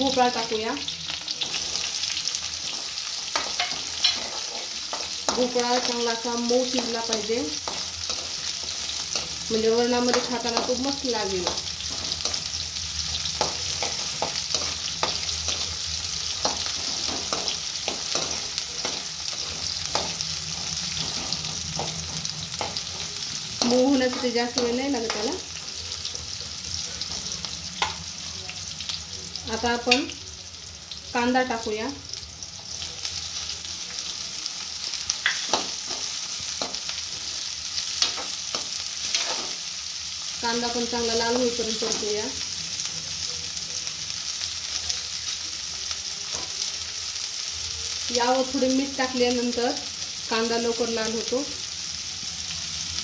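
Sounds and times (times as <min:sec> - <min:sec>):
vegetables sizzling in hot oil: 0:00.0 - 0:53.0
spoon scraping and knocking pan: 0:01.4 - 0:06.1, 0:06.7 - 0:25.7, 0:35.1 - 0:39.6.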